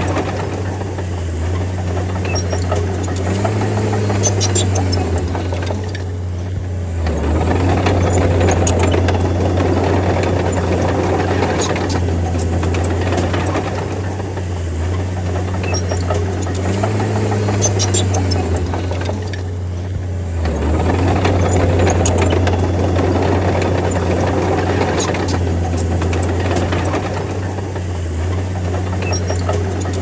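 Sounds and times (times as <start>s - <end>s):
bulldozer diesel engine: 0.0s - 30.0s
sharp high clicks: 2.2s - 6.1s, 15.5s - 19.6s.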